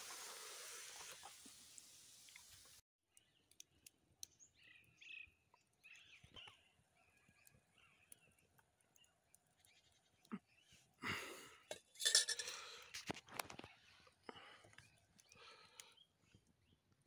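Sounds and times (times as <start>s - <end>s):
faint bird chirps: 3.2s - 10.9s
faint scattered clicks: 5.5s - 10.2s, 12.8s - 17.0s.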